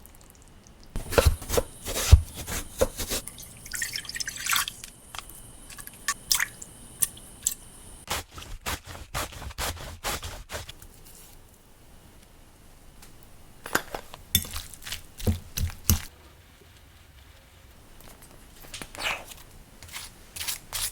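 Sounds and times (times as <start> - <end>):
splashing: 1.0 - 7.6.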